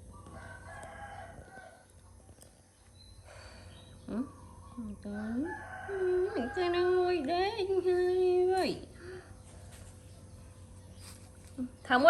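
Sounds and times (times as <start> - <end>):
rooster crowing faintly: 0.0 - 2.4.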